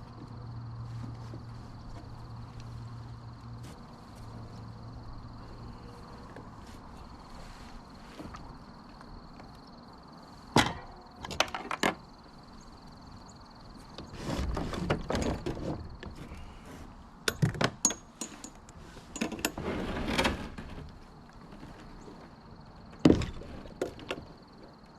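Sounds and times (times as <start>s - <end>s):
rustling scraping noise: 0.8s - 8.8s, 13.8s - 17.0s, 18.3s - 22.4s
knocks and clatter: 10.5s - 12.0s.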